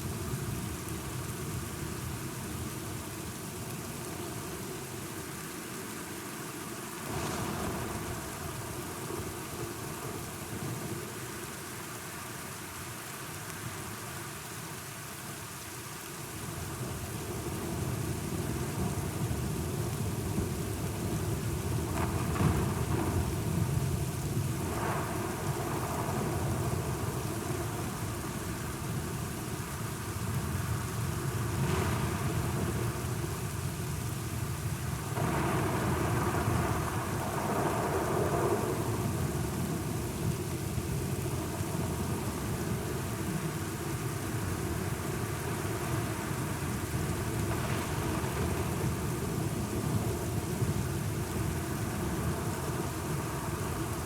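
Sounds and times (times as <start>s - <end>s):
heavy rain: 0.0s - 54.0s
rolling thunder: 35.1s - 43.4s.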